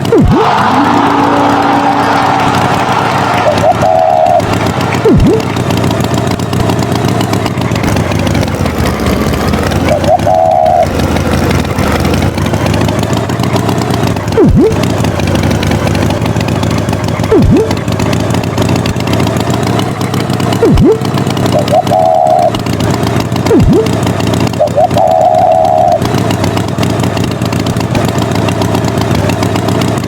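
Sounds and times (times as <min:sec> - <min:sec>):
short warbling tone: 0:00.0 - 0:01.8, 0:03.3 - 0:06.4, 0:09.0 - 0:11.1, 0:14.3 - 0:14.9, 0:17.3 - 0:17.8, 0:20.6 - 0:22.6, 0:23.4 - 0:26.1
swooping sound effects: 0:00.0 - 0:06.4, 0:09.1 - 0:11.0, 0:14.3 - 0:14.9, 0:17.3 - 0:17.8, 0:20.6 - 0:22.6, 0:23.4 - 0:26.1
cartoon tractor engine running: 0:00.0 - 0:30.0.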